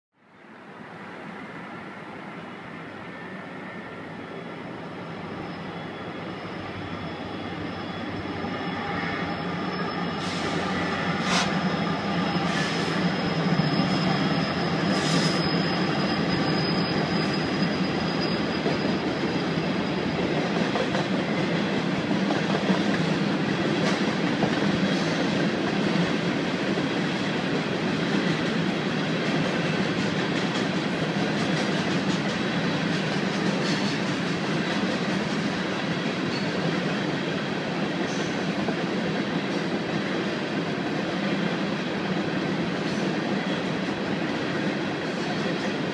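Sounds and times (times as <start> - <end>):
thin high squeal: 3.1 - 20.2
train wheels rumbling and rattling: 5.3 - 45.9
rail clicks: 7.7 - 45.9.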